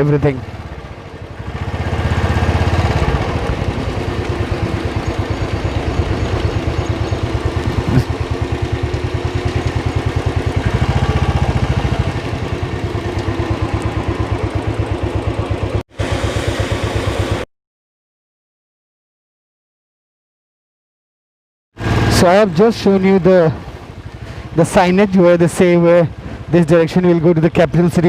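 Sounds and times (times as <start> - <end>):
motorcycle engine running: 0.0 - 17.4, 21.8 - 26.5.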